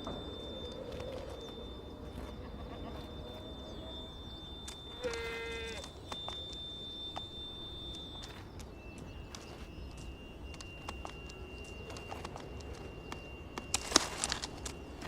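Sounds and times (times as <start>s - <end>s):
faint high tone: 0.0s - 13.6s.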